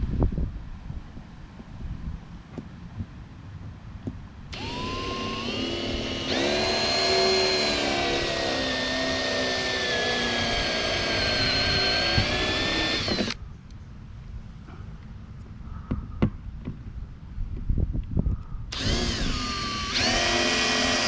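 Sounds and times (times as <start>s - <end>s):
electric drill boring through plastic: 4.5s - 13.4s, 18.7s - 21.0s.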